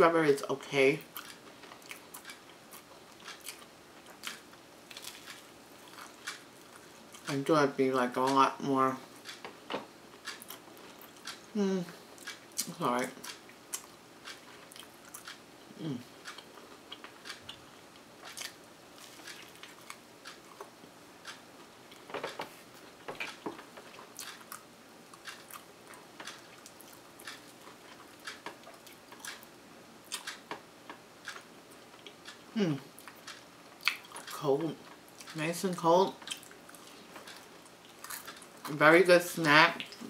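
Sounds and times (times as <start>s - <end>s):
person biting and chewing: 1.2s - 7.3s, 18.2s - 21.4s, 24.0s - 29.5s.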